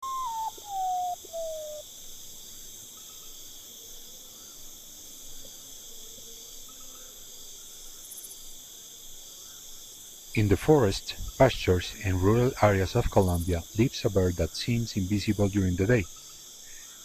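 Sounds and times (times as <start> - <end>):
bird whistling descending notes: 0.0 - 1.8
insect chorus: 0.0 - 17.0.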